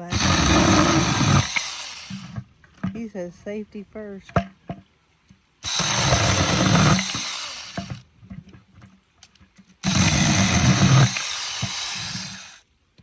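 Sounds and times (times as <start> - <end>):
chainsaw cutting wood: 0.0 - 3.0, 5.6 - 8.1, 9.8 - 12.6
small knocks: 4.2 - 12.4.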